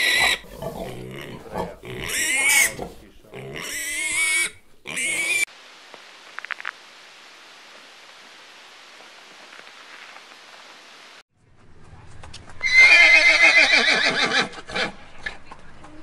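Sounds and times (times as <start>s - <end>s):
faint steady hiss: 4.5s - 11.2s
horse whinnying: 12.6s - 14.9s.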